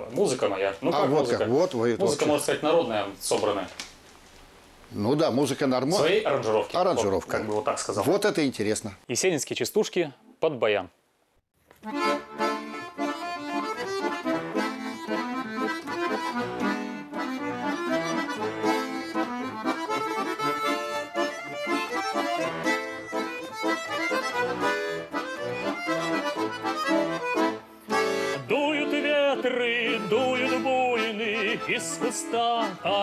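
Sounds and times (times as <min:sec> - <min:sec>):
button accordion playing folk tune: 0:11.8 - 0:33.0.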